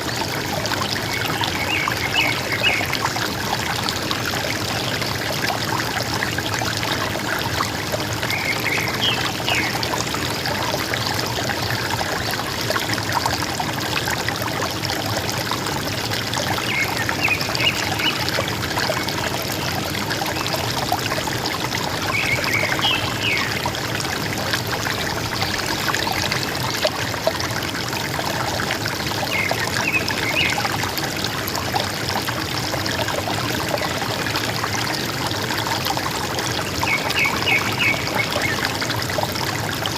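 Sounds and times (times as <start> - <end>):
river water gurgling: 0.0 - 39.9
bird calls: 22.1 - 23.6.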